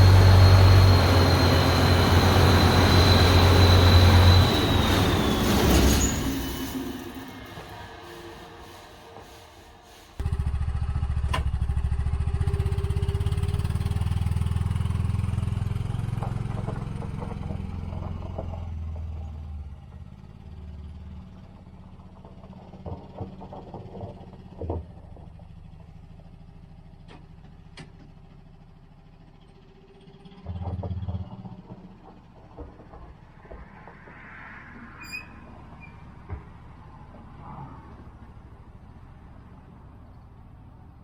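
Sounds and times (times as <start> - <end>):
combine engine rumbling: 0.0 - 34.2.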